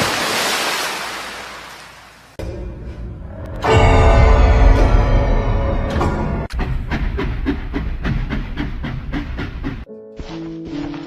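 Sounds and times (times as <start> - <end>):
wash of noise: 0.0 - 2.4
eerie music: 2.4 - 11.0.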